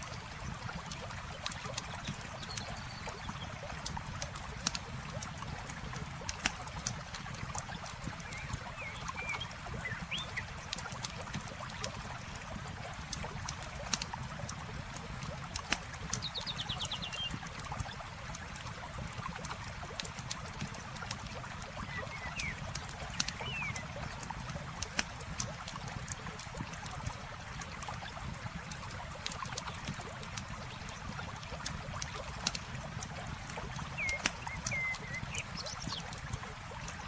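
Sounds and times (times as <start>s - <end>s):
campfire crackling: 0.0s - 9.7s, 10.3s - 16.3s, 22.6s - 37.0s
flowing water: 0.0s - 37.0s
bird chirps: 8.4s - 10.4s, 23.3s - 23.9s, 34.0s - 36.0s
rapid bird trill: 23.3s - 23.8s, 34.0s - 35.9s.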